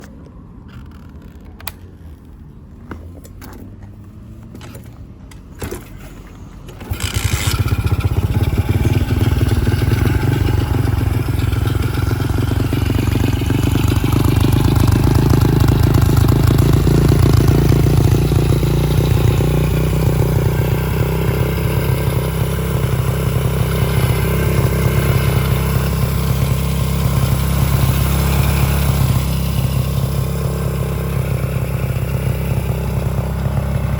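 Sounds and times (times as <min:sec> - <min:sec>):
motorcycle engine running: 0:06.7 - 0:33.9.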